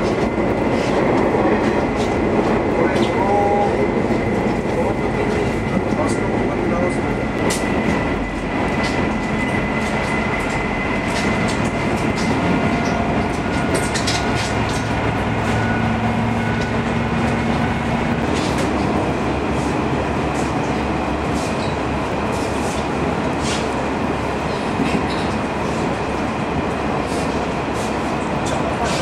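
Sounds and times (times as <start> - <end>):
train rumbling on track: 0.0 - 29.0
wheels clacking on rail joints: 7.4 - 19.1.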